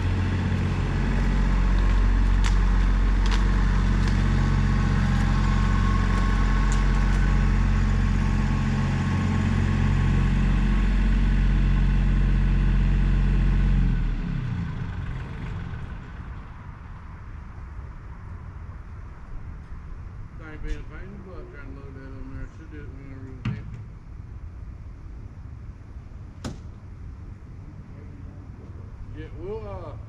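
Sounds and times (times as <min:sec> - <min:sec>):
large engine idling: 0:00.0 - 0:18.0.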